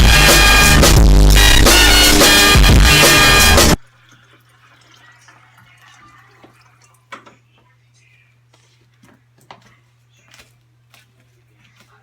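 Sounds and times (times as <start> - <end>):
faint scattered small noises: 3.8 - 12.0.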